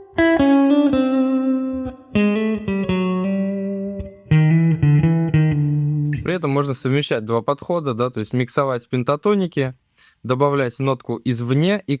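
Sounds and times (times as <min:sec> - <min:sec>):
jazz guitar improvisation: 0:00.0 - 0:06.3.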